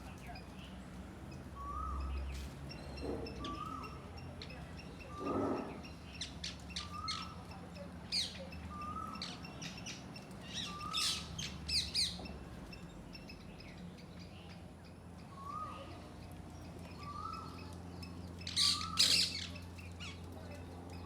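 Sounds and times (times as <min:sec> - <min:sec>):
parakeets chirping and squawking: 0:01.8 - 0:12.4, 0:17.0 - 0:20.2.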